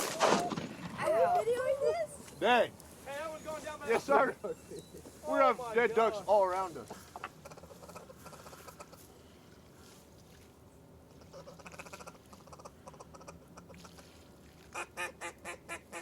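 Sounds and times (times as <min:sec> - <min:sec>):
duck quacking: 0:06.9 - 0:09.0, 0:11.2 - 0:14.0, 0:14.8 - 0:16.0.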